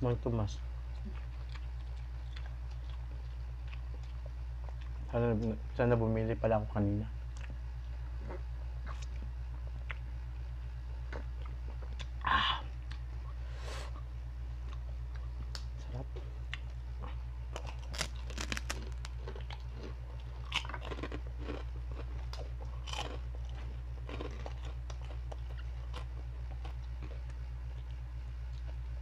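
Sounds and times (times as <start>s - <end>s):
steady low hum: 0.0s - 29.0s
pork rinds crunching: 16.5s - 27.8s.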